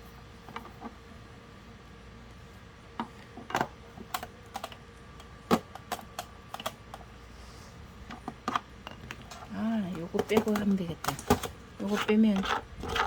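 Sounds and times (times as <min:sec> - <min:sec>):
plastic fan housing handled: 0:08.0 - 0:13.0.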